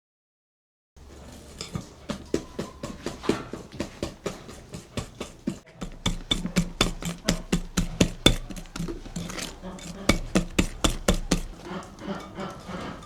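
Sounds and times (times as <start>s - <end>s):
rapid sharp knocks: 3.8s - 11.6s.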